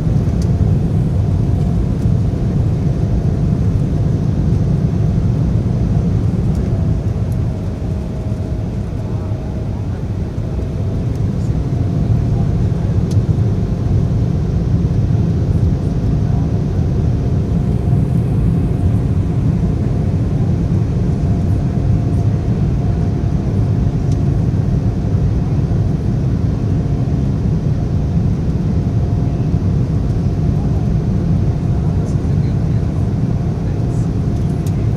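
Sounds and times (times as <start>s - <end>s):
airliner jet engines rumbling: 0.0s - 34.9s
faint steady hum: 4.8s - 13.2s, 17.2s - 24.3s.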